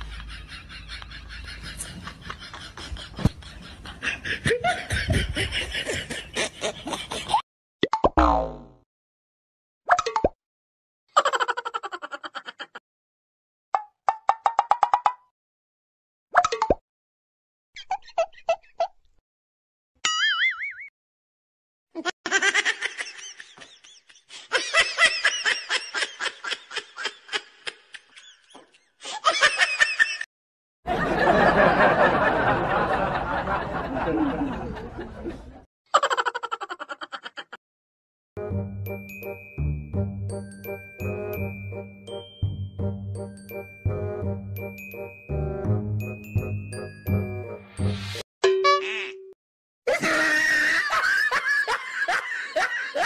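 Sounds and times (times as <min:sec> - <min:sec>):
comedy laughter sound effect: 0:00.0 - 0:07.4, 0:11.1 - 0:12.8, 0:22.0 - 0:30.3, 0:30.9 - 0:37.6, 0:48.6 - 0:53.0
person laughing: 0:00.0 - 0:07.4, 0:36.0 - 0:37.6, 0:49.9 - 0:53.0
cartoon effect sliding down: 0:48.0 - 0:49.3.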